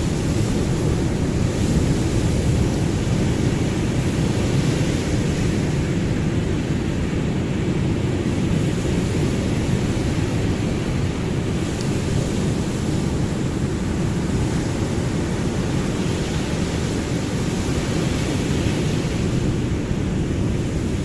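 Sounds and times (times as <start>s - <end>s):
ocean surf rumble: 0.0s - 21.0s.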